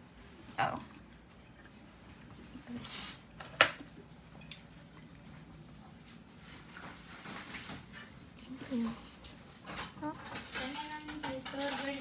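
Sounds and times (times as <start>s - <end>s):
light rustling handling noises: 4.5s - 12.0s.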